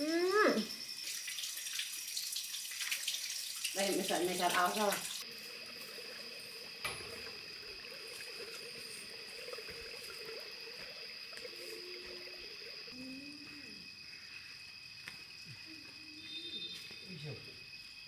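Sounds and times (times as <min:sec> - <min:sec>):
faint trickling water: 0:00.0 - 0:14.3.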